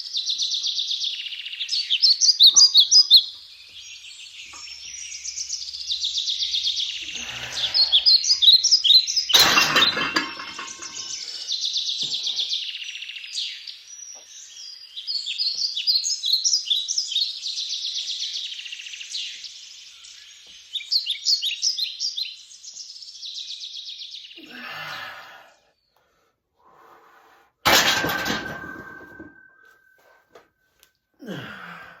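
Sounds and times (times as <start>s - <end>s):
small birds chirping: 0.0s - 9.4s, 10.0s - 27.0s
sharp metal clank: 9.4s - 11.2s, 27.7s - 29.4s.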